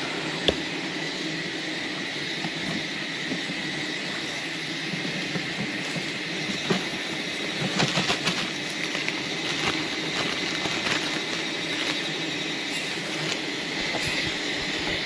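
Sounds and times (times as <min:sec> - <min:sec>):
honeybees buzzing: 0:06.6 - 0:15.0.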